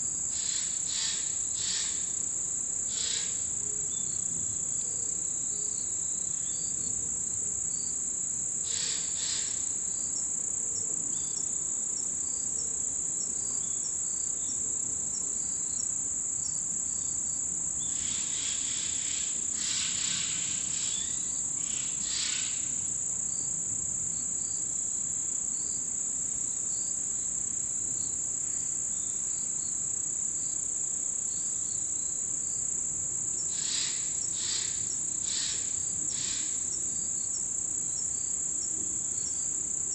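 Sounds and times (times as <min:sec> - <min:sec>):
crickets trilling: 0:00.0 - 0:39.9
insect chirps: 0:00.0 - 0:39.9.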